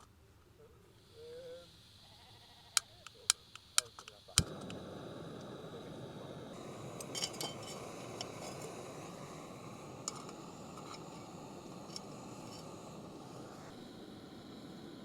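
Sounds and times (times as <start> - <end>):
metal cookware clinking: 7.0 - 8.7.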